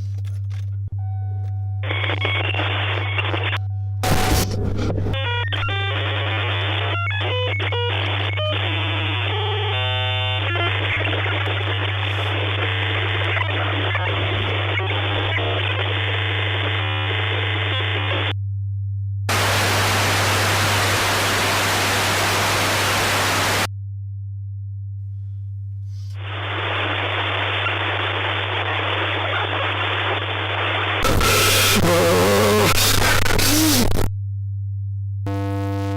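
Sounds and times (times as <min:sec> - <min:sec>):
low hum: 0:00.0 - 0:06.8, 0:16.1 - 0:31.4, 0:34.0 - 0:35.9
static hiss: 0:19.3 - 0:23.7, 0:26.2 - 0:34.1.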